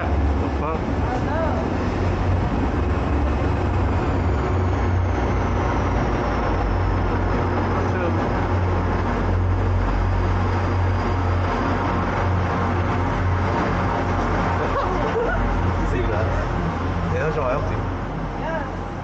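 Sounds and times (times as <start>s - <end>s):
train rumbling and humming: 0.0s - 19.0s.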